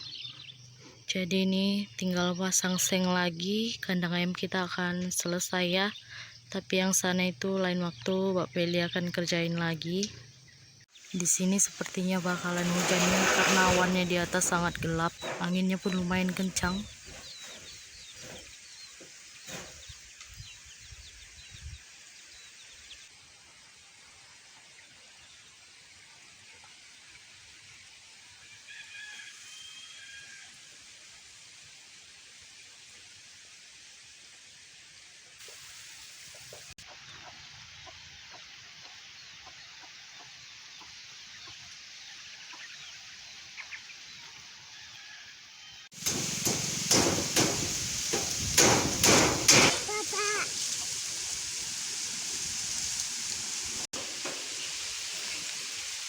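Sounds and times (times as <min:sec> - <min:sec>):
small birds chirping: 0:04.1 - 0:23.2, 0:37.0 - 0:44.4
chickens clucking: 0:11.3 - 0:19.8
sharp knock: 0:46.0 - 0:49.9
steady background hiss: 0:46.0 - 0:56.0
wind gusting on microphone: 0:46.1 - 0:49.8.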